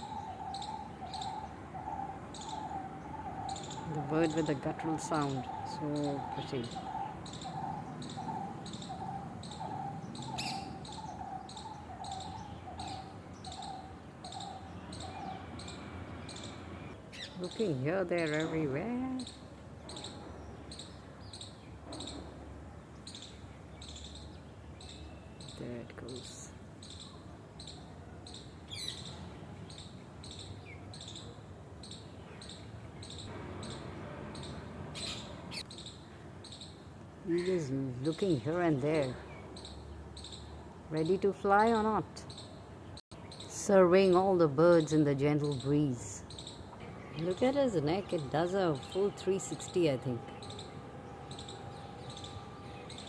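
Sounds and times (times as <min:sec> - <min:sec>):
bird guttural call: 0:00.0 - 0:17.4, 0:32.4 - 0:35.9
high pulsing chirping: 0:00.0 - 0:22.2, 0:38.1 - 0:53.0.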